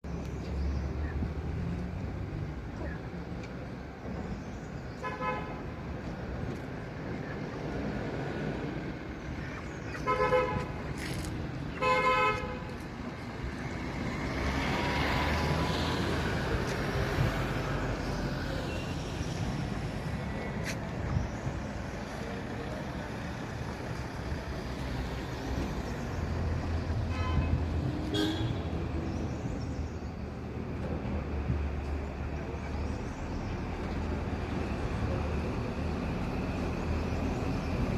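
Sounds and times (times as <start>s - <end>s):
road traffic: 0.0s - 37.9s
vehicle horns honking: 5.0s - 5.6s, 10.0s - 10.8s, 11.8s - 12.7s, 27.1s - 28.7s.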